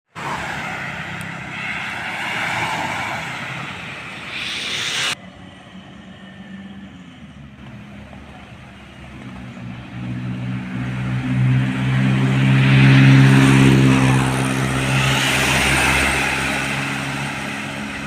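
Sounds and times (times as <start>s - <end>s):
truck passing: 0.1s - 18.0s
low diesel engine drone: 0.8s - 18.0s.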